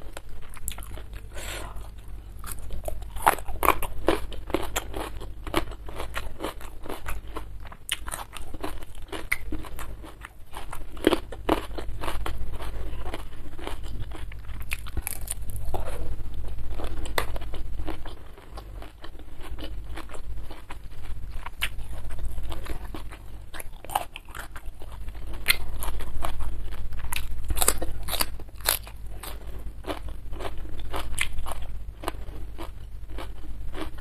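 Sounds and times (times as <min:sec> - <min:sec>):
steady low hum: 0:00.0 - 0:34.0
crunching bites of food: 0:00.1 - 0:34.0.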